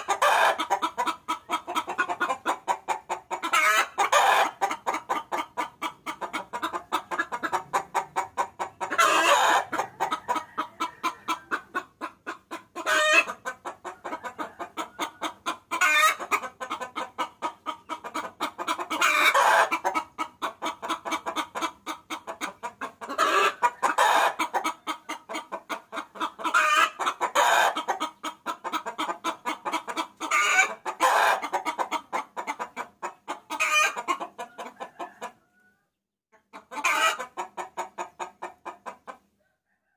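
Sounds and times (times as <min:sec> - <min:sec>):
hen cackling: 0:00.0 - 0:35.7, 0:36.4 - 0:39.2.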